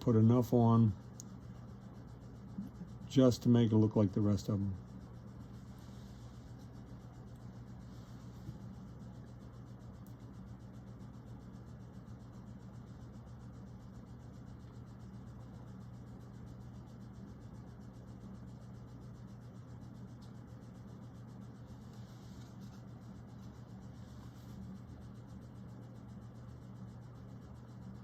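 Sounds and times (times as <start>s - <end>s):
low electrical hum: 0.0s - 28.0s
faint rubbing sounds: 5.4s - 6.8s, 7.7s - 8.8s, 21.7s - 24.8s.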